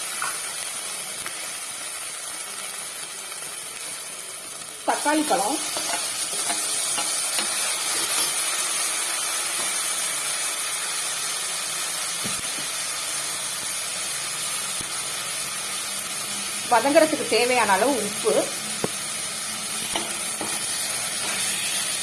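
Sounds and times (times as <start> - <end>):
tomatoes sizzling in hot oil: 0.0 - 22.0.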